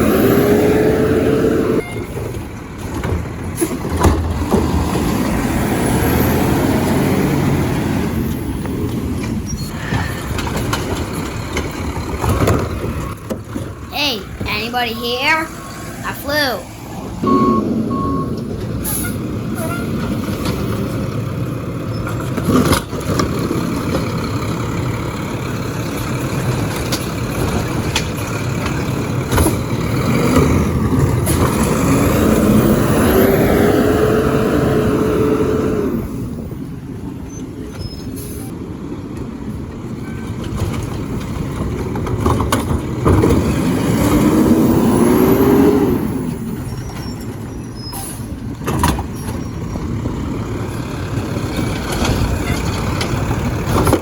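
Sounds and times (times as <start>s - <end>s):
diesel engine running: 0.0s - 37.2s.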